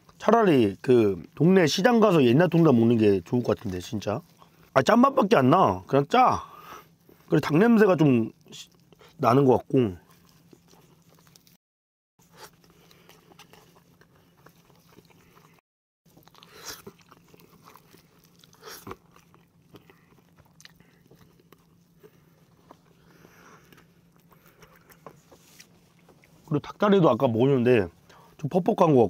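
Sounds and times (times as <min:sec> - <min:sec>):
person chewing: 0:06.5 - 0:11.6, 0:12.2 - 0:26.8.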